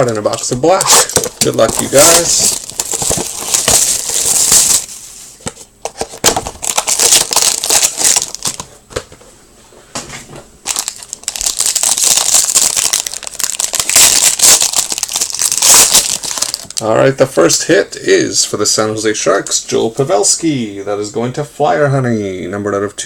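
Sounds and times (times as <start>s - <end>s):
wrappers torn and crinkled: 0.0s - 4.9s, 6.2s - 8.7s, 10.7s - 16.9s.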